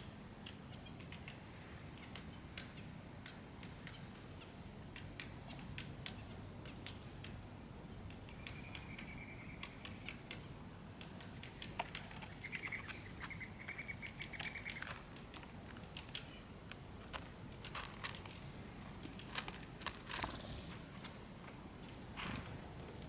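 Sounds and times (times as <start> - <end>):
sharp little clicks and taps: 2.0 - 7.4, 8.0 - 12.4
songbirds trilled calls: 8.0 - 10.4, 11.2 - 15.1.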